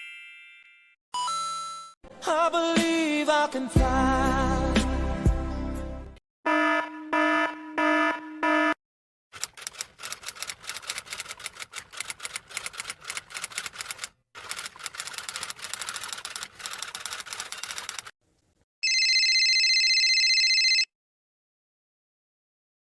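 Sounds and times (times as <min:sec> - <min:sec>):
electronic alarm beeps: 0:06.5 - 0:08.8
rapid typing clicks: 0:09.4 - 0:18.1.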